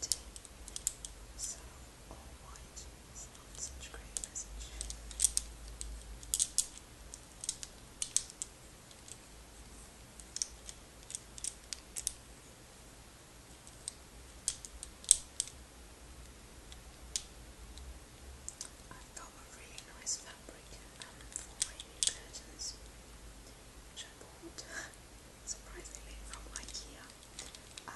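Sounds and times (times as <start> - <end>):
small hard objects clicking: 0.0 - 1.1, 3.6 - 9.2.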